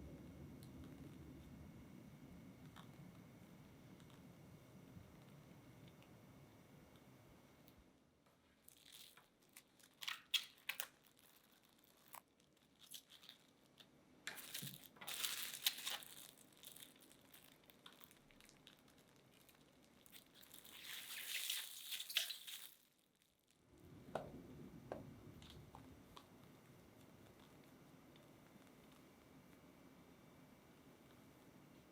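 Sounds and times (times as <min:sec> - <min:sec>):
baking paper crinkling: 0:08.5 - 0:23.5.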